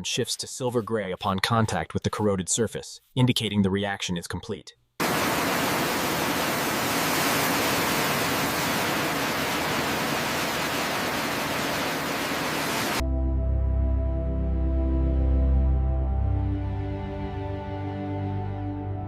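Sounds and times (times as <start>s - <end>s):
steady even hiss: 5.0s - 13.0s.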